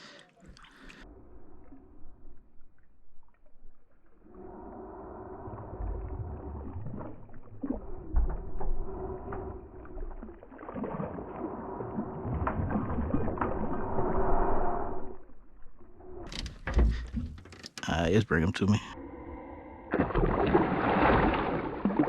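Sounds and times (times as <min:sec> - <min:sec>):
low knocks and thumps: 0:16.3 - 0:17.6.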